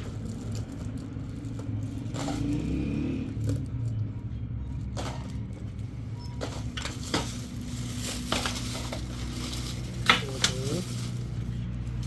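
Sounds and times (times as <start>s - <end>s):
hard objects clicking and knocking: 4.8s - 10.7s
brief squeak: 6.2s - 6.4s.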